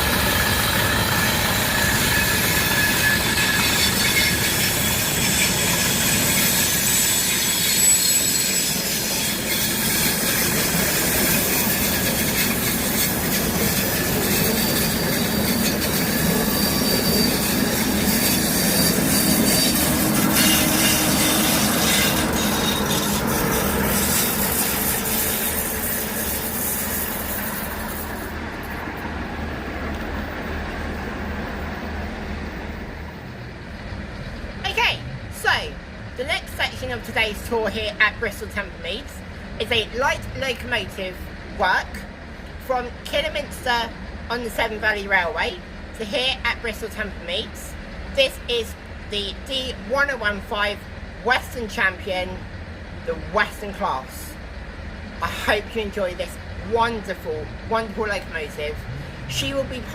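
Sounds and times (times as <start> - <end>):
train wheels squealing on rails: 0.0 - 35.2.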